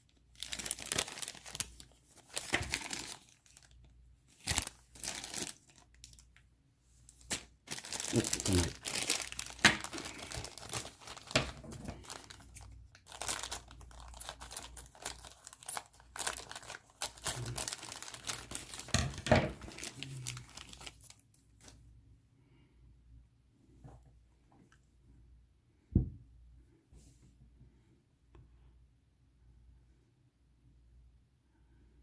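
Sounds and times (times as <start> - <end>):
plastic bags crinkling: 0.2 - 6.4, 7.1 - 21.7.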